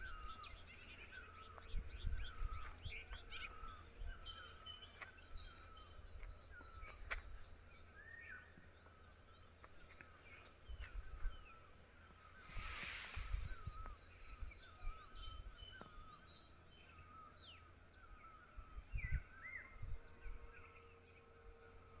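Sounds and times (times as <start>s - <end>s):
wind rumble on microphone: 0.0s - 7.8s, 10.2s - 16.3s, 17.9s - 20.9s
small birds chirping: 0.0s - 22.0s
rush of hiss: 12.2s - 14.1s.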